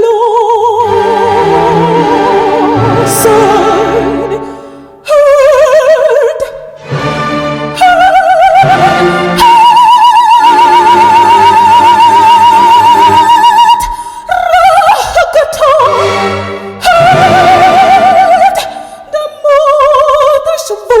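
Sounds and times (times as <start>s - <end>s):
woman singing operatically: 0.0s - 7.0s, 7.6s - 21.0s
instrumental accompaniment: 6.8s - 9.8s.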